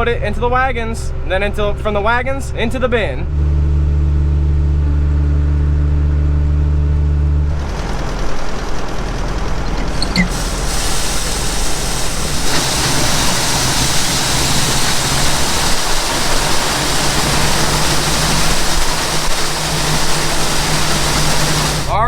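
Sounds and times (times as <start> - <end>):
tractor engine running: 3.0 - 22.0
grain pouring from auger: 7.5 - 22.0.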